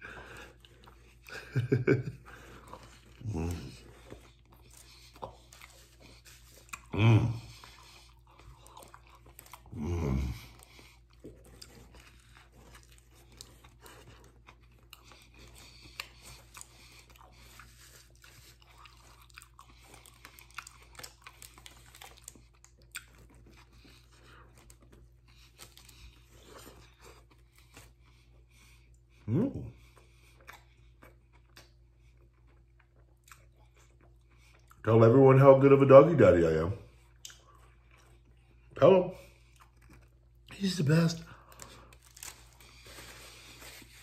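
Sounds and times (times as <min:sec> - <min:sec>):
man chewing a sandwich: 0:00.0 - 0:44.0
man grunting: 0:06.9 - 0:07.5.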